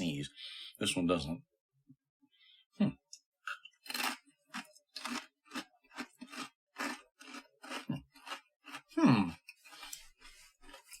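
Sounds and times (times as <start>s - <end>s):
rice cracker crunchy chewing: 3.5s - 11.0s.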